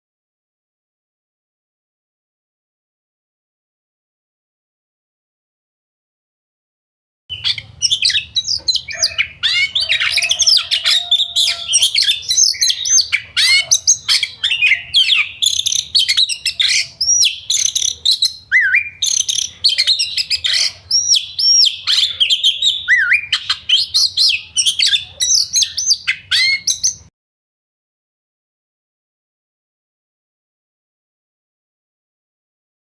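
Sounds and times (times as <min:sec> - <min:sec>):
birds singing: 0:07.3 - 0:27.1.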